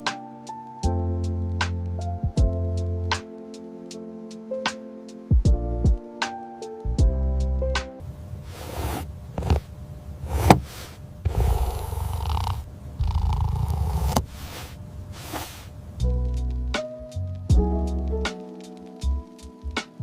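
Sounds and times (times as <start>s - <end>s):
cat purring: 11.3s - 14.2s.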